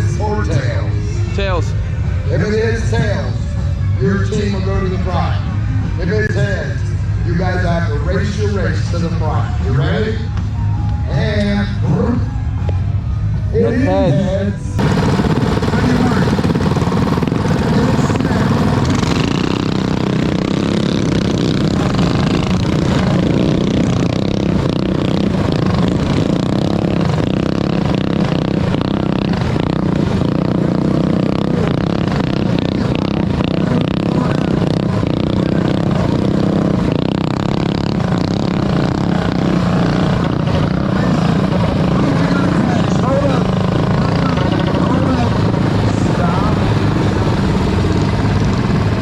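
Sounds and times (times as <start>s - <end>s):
mini bike engines racing: 14.8s - 49.0s.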